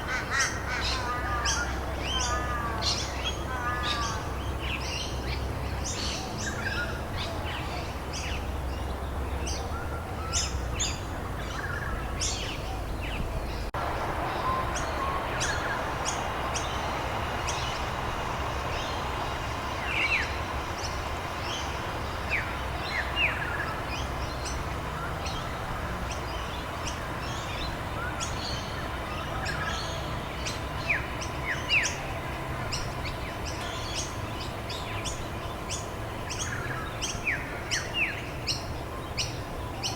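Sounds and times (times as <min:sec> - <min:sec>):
birds chirping: 0:00.0 - 0:39.9
rain hissing: 0:13.7 - 0:36.1.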